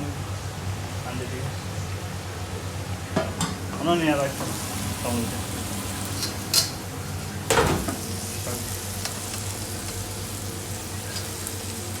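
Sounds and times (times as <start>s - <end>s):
low kitchen hum: 0.0s - 12.0s
food sizzling in a pan: 4.2s - 12.0s.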